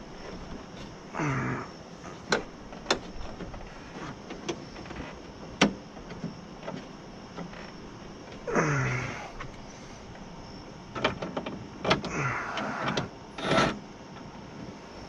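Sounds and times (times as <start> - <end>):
sharp metallic clicks and knocks: 2.3 - 7.5, 10.9 - 12.1
sliding scrape in car door: 12.6 - 13.8.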